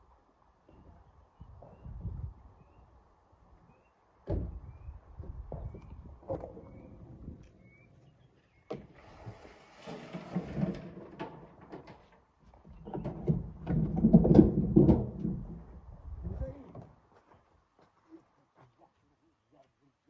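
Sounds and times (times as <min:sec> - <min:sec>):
rocks knocking and clattering: 0:10.0 - 0:15.8.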